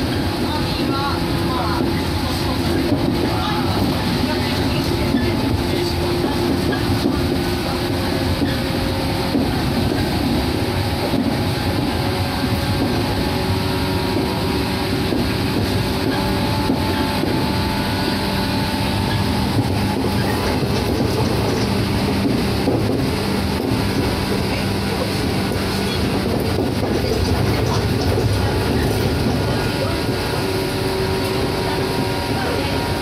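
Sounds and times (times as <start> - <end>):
train wheels rumbling on rail: 0.0 - 33.0
light track knock: 10.9 - 31.4.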